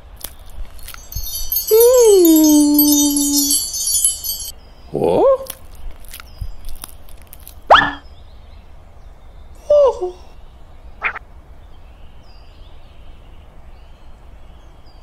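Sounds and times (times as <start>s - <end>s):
shimmering chime run: 0.8s - 4.5s.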